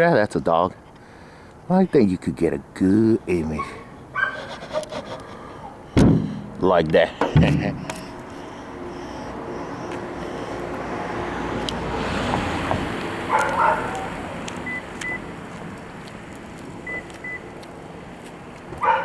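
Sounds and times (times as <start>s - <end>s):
car engine idling: 2.6s - 19.0s
dog barking: 3.6s - 4.8s, 13.3s - 14.3s, 18.8s - 19.0s.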